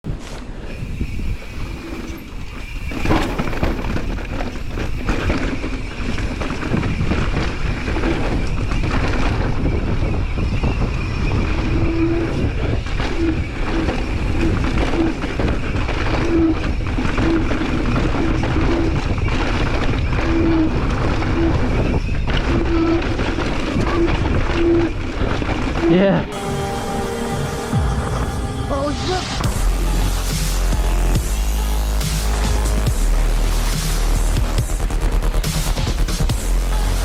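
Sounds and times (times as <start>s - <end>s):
wind buffeting microphone: 0.1s - 29.6s
short higher tones: 26.0s - 32.8s
continuous high buzz: 26.2s - 37.0s.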